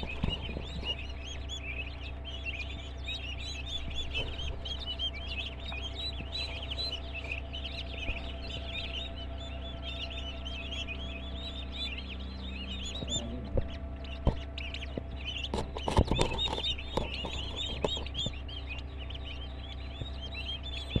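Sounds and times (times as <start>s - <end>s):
turkey chicks peeping: 0.0s - 21.0s
knocks and thumps: 13.0s - 18.4s.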